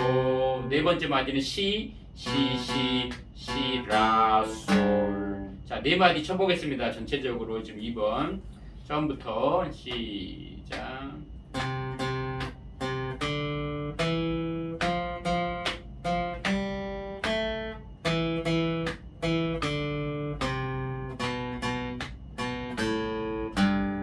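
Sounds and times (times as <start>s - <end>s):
acoustic guitar single-note melody: 0.0s - 1.1s, 2.2s - 5.7s, 10.7s - 24.0s.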